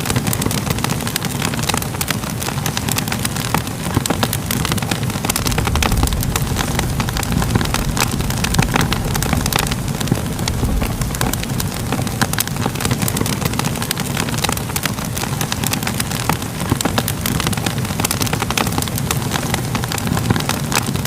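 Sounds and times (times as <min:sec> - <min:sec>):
fire popping and snapping: 0:00.0 - 0:21.0
low rumble of flames: 0:00.1 - 0:21.0.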